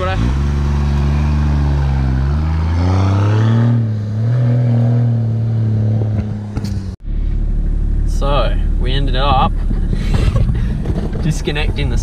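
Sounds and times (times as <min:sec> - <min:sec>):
truck engine revving: 0:00.0 - 0:06.9.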